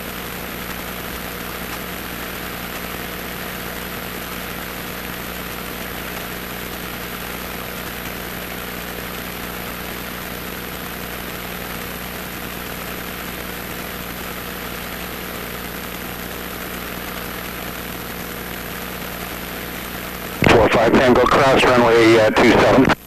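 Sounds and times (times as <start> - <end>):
constant hiss: 0.4 - 23.0.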